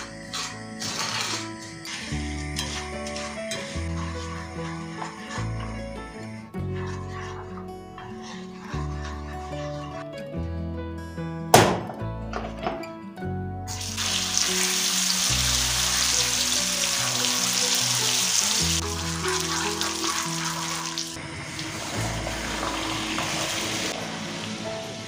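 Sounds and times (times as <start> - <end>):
food sizzling in hot oil: 0.0 - 6.4, 13.7 - 25.0
background music: 0.0 - 25.0.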